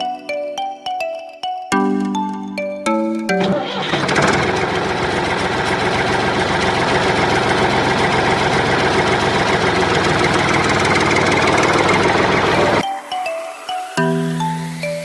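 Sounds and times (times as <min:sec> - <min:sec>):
engine idling with rattle: 0:03.4 - 0:12.8.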